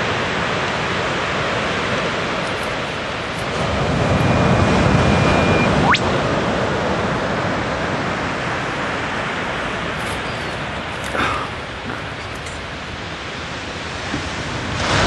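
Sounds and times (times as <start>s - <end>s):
surf washing: 0.0s - 15.0s
bird whistle and whip-crack call: 5.3s - 6.1s.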